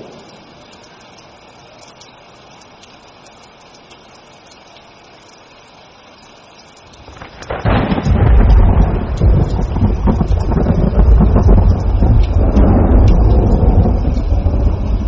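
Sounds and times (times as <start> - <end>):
thunder rumbling: 0.0 - 0.6, 7.0 - 15.0
rain hissing: 0.0 - 15.0.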